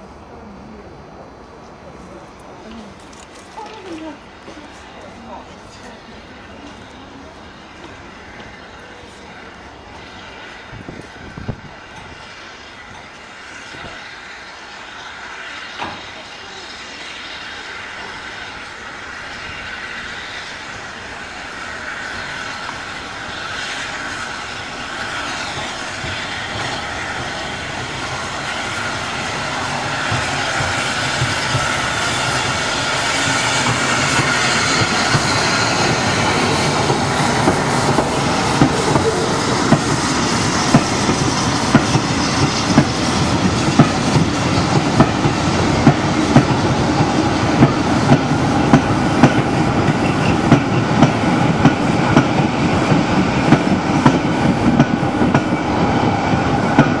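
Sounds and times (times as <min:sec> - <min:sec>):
steam train approaching: 0:00.0 - 0:57.0
train wheels clacking over rail joints: 0:29.4 - 0:57.0.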